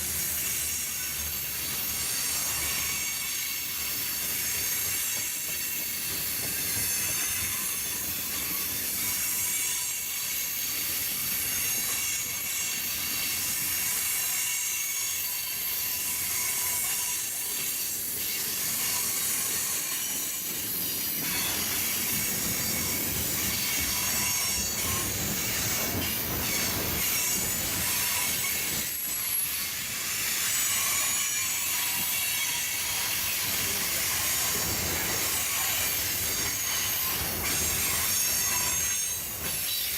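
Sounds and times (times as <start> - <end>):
train wheels squealing: 0.0 - 39.9
freight train rumble: 15.1 - 39.9.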